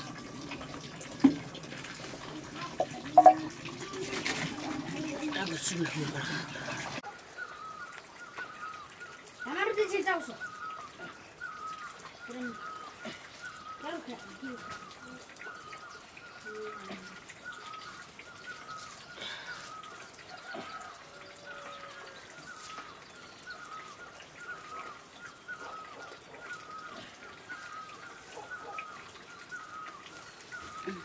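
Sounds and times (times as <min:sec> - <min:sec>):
bird chirping: 0:02.8 - 0:03.5.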